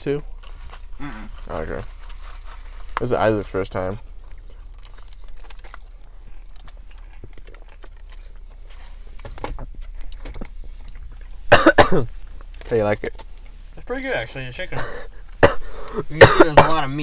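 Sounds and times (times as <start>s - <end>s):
low steady hum: 0.0s - 17.0s
chewing and biting food: 0.1s - 13.7s.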